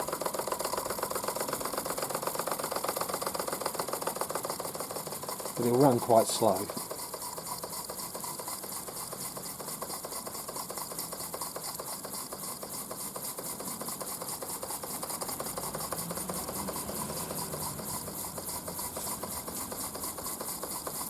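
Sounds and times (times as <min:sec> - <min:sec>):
steam engine running: 0:00.0 - 0:21.0.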